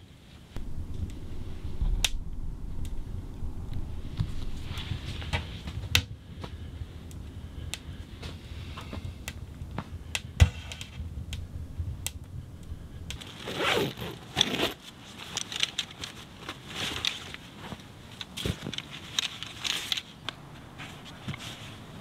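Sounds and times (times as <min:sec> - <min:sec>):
kindling crackling in wood stove: 0:00.0 - 0:22.0
nylon fabric rustling and scraping: 0:13.2 - 0:22.0.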